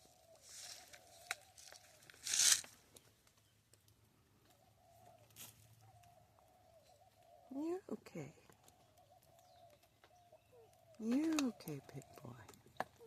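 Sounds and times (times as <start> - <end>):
faint drawn-out bird calls: 0.0 - 13.0
loud rustle: 1.6 - 2.7.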